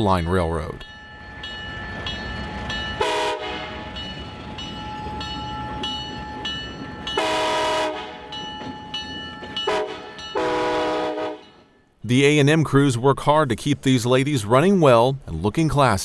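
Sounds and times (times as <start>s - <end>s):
locomotive bell ringing: 0.0s - 12.0s
locomotive air horn chord: 3.0s - 3.9s, 7.2s - 8.3s, 9.6s - 11.6s.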